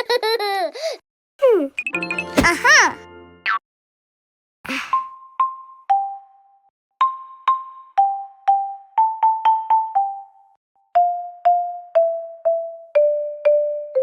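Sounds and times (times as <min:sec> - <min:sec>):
mallet instrument tune: 0:01.8 - 0:03.4, 0:07.0 - 0:14.0.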